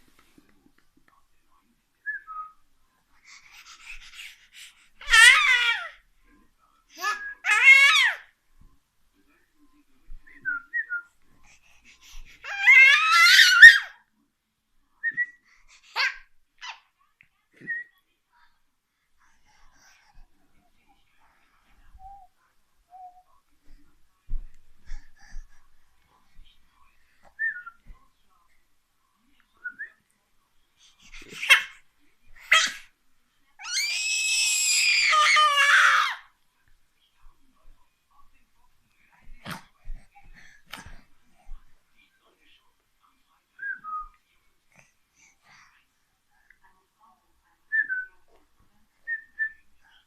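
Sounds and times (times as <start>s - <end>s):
baby breathy sounds: 3.2s - 5.2s, 24.7s - 25.8s
baby squealing: 12.4s - 13.9s, 33.6s - 36.2s.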